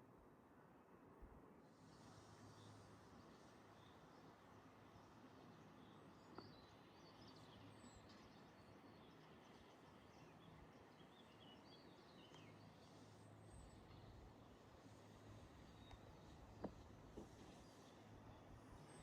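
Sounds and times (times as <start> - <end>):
faint birdsong chirps: 1.2 - 19.0
faint click: 12.2 - 12.6.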